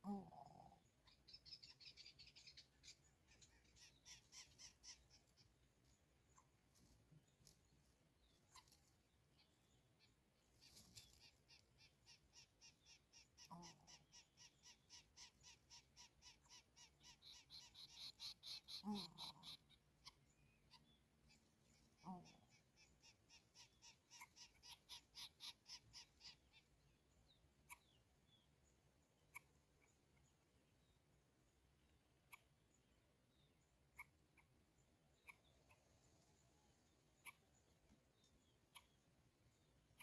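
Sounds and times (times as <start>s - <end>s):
rapid high bird chirps: 1.0s - 5.6s.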